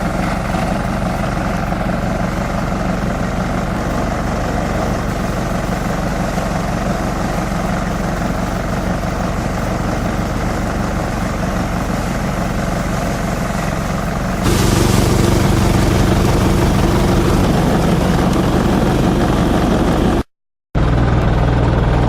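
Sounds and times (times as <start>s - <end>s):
harsh hiss: 14.4s - 18.7s
shredder machine humming: 14.4s - 21.4s.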